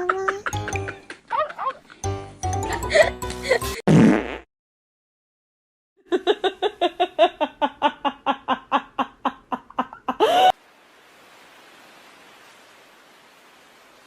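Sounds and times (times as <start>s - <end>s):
person laughing: 0.0s - 1.9s, 2.6s - 3.8s, 6.1s - 10.6s.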